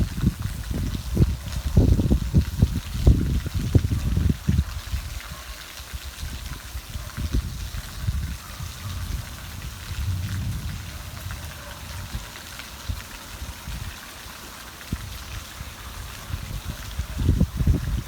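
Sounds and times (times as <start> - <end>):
heavy rain hissing: 0.0 - 5.4, 6.0 - 18.0
low rumble: 9.1 - 12.2.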